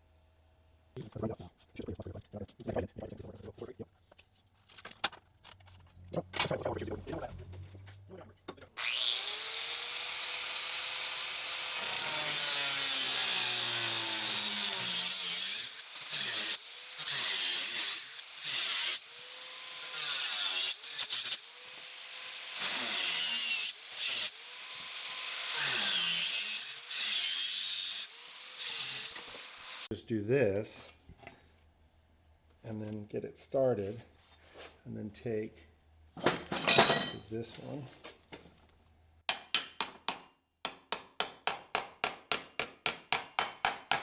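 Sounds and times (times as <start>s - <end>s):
power tool cutting sheet steel: 8.8s - 29.9s.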